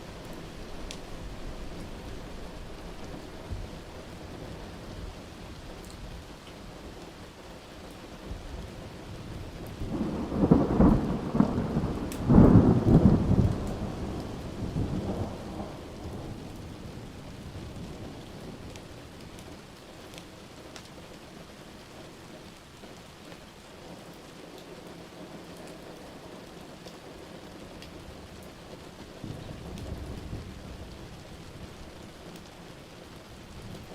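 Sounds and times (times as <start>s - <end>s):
steady rain: 0.0s - 33.9s
thunder rumbling: 8.3s - 18.8s, 29.2s - 32.3s.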